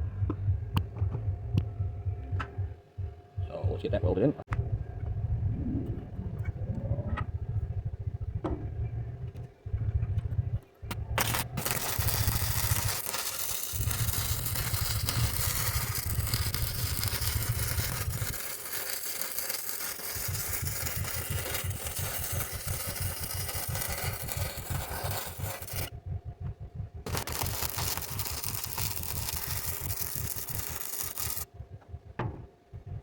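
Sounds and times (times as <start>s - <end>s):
welding arc crackling: 10.9s - 25.9s, 27.1s - 31.5s.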